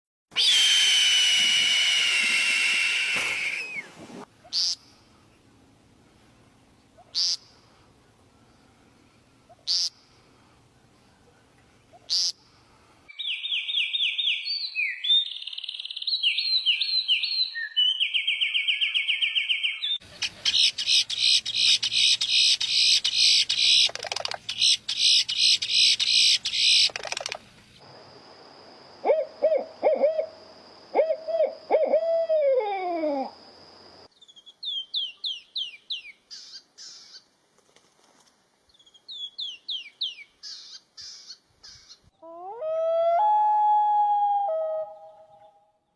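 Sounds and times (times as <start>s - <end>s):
bird calls and trills: 13.1s - 27.8s, 34.1s - 37.3s, 38.7s - 42.3s, 44.3s - 45.9s.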